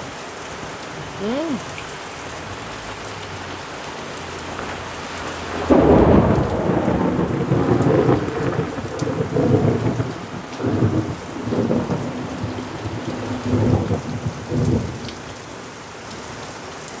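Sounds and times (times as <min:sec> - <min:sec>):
heavy rain: 0:00.0 - 0:17.0
rolling thunder clap: 0:04.6 - 0:15.0.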